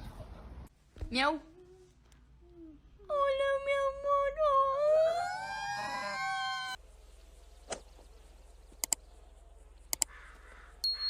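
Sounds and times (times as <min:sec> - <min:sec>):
faint clicks: 0:08.8 - 0:09.0, 0:09.9 - 0:10.4.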